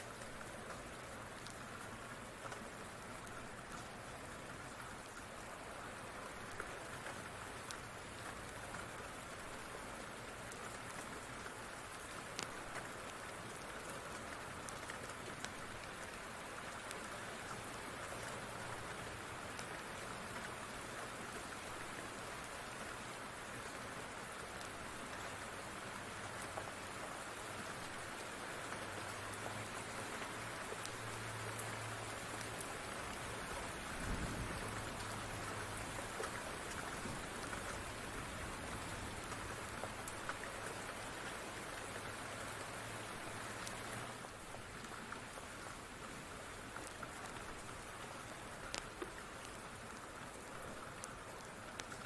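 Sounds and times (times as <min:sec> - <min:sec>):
faint ticks: 0:00.0 - 0:05.3, 0:06.4 - 0:20.8, 0:26.2 - 0:32.7, 0:38.8 - 0:42.7, 0:43.3 - 0:52.0
steady rain: 0:00.0 - 0:52.0.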